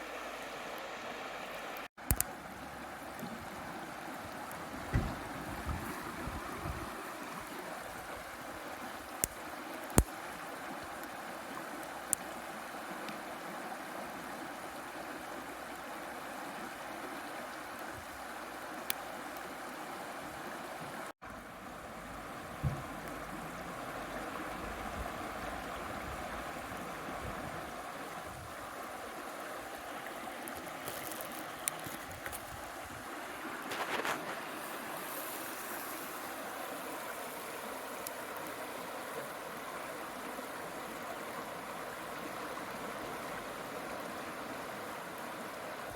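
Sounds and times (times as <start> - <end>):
river flowing over stones: 0.0 - 45.9
knock: 4.9 - 5.8, 22.6 - 22.8.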